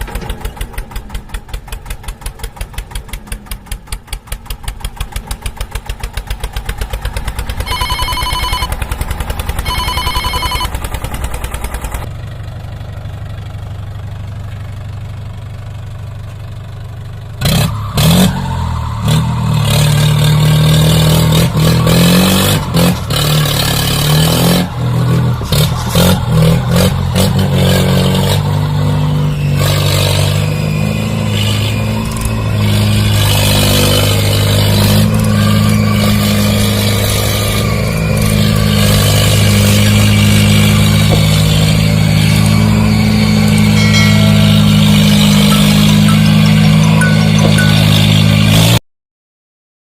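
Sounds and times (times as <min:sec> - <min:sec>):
vehicle engine chugging and revving: 0:00.0 - 0:48.8
horn honks: 0:07.7 - 0:08.8, 0:09.6 - 0:10.8.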